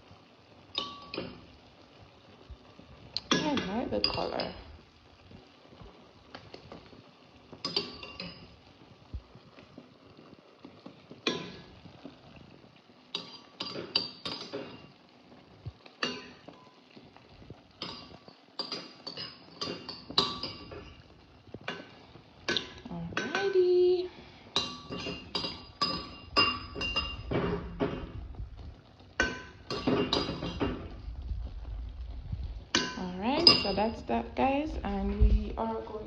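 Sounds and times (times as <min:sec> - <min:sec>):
utensil scraping cooking pot: 0:17.2 - 0:23.9, 0:24.5 - 0:34.3.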